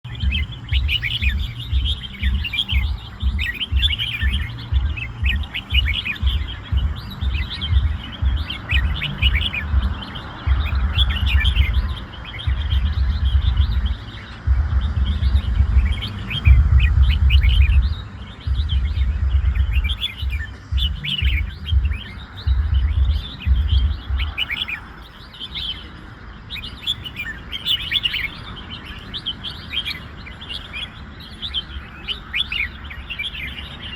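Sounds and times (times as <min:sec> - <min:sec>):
loud low rumbling: 0:00.0 - 0:24.4
birds chirping: 0:00.0 - 0:33.9.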